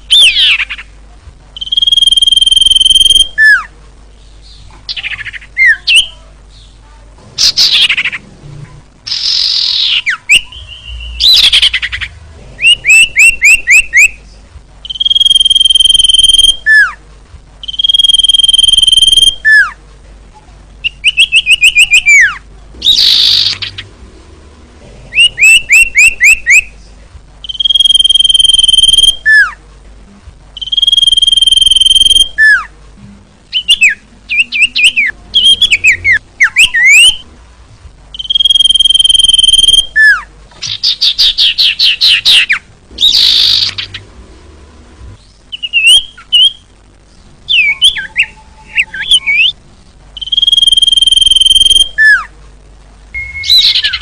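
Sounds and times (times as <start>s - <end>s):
bird whistling and trilling: 1.6s - 3.7s, 12.6s - 14.2s, 14.9s - 16.9s, 17.6s - 19.7s, 20.8s - 23.8s, 25.2s - 26.7s, 27.4s - 29.5s, 30.6s - 32.6s, 33.6s - 37.2s, 38.2s - 44.0s, 45.5s - 46.6s, 47.5s - 49.6s, 50.2s - 52.2s, 53.2s - 54.0s.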